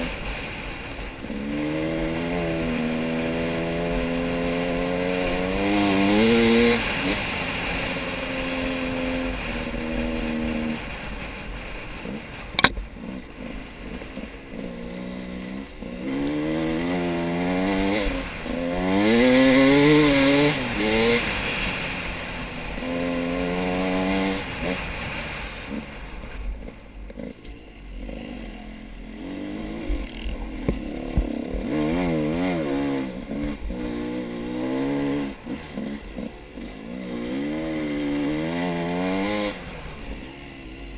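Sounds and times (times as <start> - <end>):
engines revving: 0.0 - 40.9
sharp click: 12.6 - 12.8.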